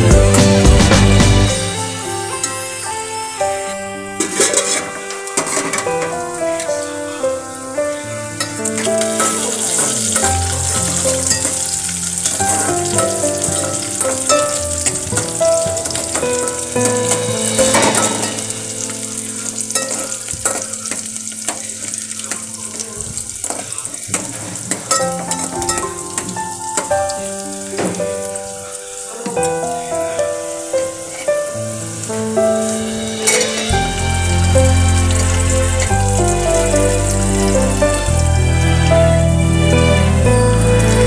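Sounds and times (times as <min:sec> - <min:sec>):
instrumental background music: 0:00.0 - 0:41.0
onions sizzling in oil: 0:00.0 - 0:41.0
spoon clinking against pot: 0:19.8 - 0:21.6, 0:24.9 - 0:26.3.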